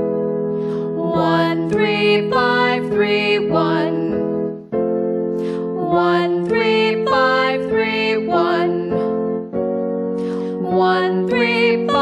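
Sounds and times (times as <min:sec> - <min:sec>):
person singing vocal warm-up: 0:00.6 - 0:04.3, 0:05.4 - 0:09.2, 0:10.2 - 0:12.0.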